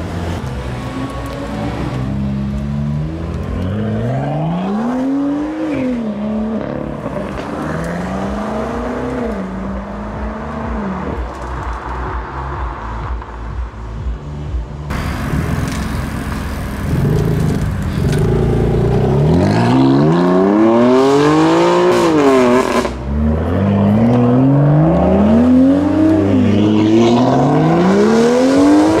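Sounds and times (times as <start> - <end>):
car engine accelerating hard: 0.0 - 11.3, 14.9 - 29.0
car accelerating through gears: 16.8 - 29.0.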